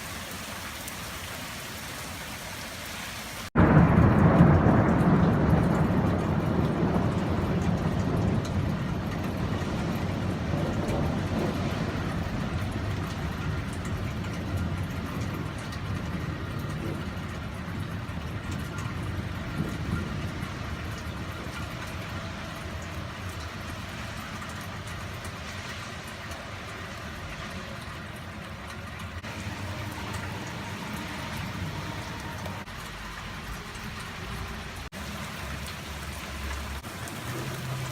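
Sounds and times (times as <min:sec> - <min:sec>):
rain falling: 0:00.0 - 0:37.9
thunder rumbling: 0:03.6 - 0:23.8, 0:29.1 - 0:32.8, 0:35.0 - 0:37.9.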